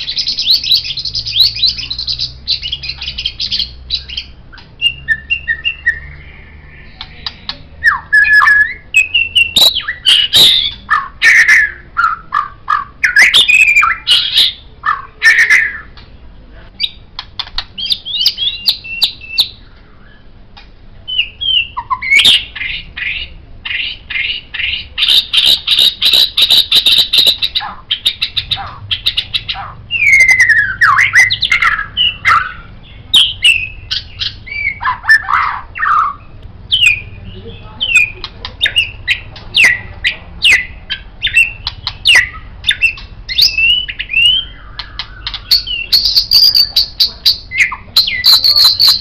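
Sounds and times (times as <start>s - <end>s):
bird singing whistles: 0.0s - 7.0s, 7.8s - 12.3s, 13.0s - 15.9s, 17.8s - 20.2s, 21.1s - 22.7s, 29.9s - 39.8s, 40.4s - 49.0s.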